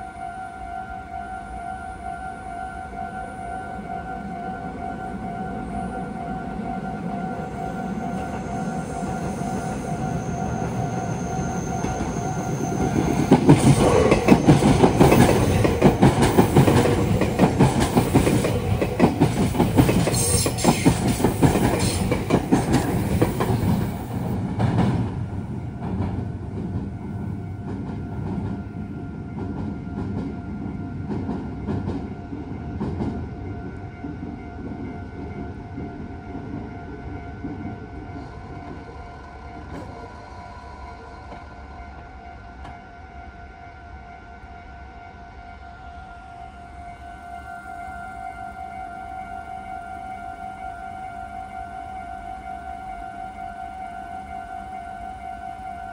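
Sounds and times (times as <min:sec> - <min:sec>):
train wheels clacking over joints: 0:11.4 - 0:25.1.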